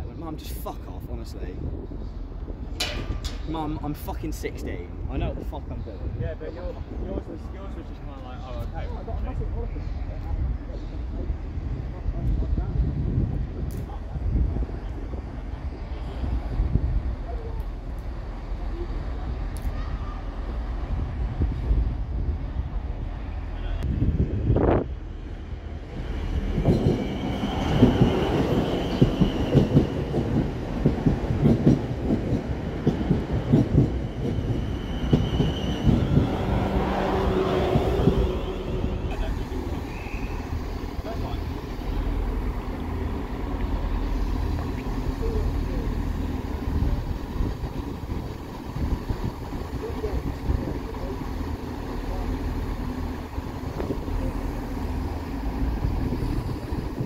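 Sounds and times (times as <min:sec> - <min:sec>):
low train rumble: 0:00.0 - 0:57.0
wind on microphone rumble: 0:10.4 - 0:17.3, 0:23.8 - 0:25.1, 0:29.6 - 0:39.1, 0:55.7 - 0:57.0
train wheels clattering over joints: 0:26.4 - 0:37.4.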